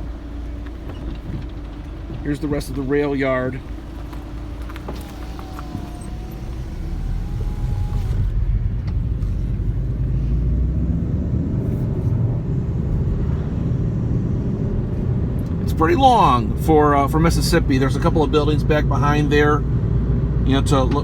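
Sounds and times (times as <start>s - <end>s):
road and engine noise in car: 0.0s - 21.0s.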